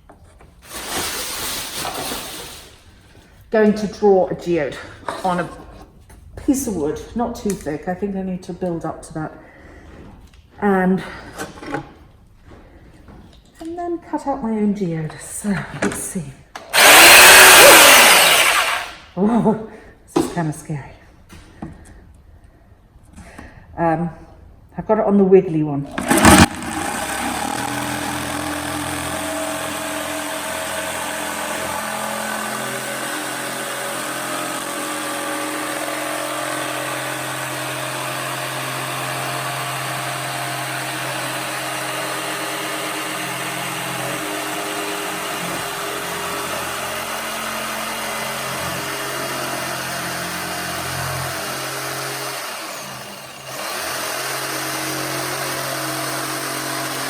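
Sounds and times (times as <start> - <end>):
jigsaw cutting wood: 0.6 - 2.8, 16.6 - 19.1, 25.9 - 57.0.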